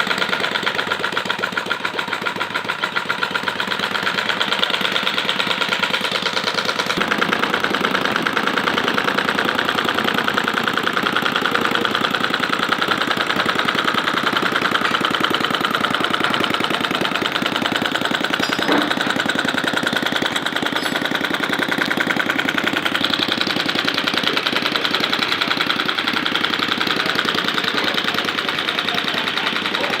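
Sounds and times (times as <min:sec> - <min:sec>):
petrol engine running steadily: 0:00.0 - 0:30.0.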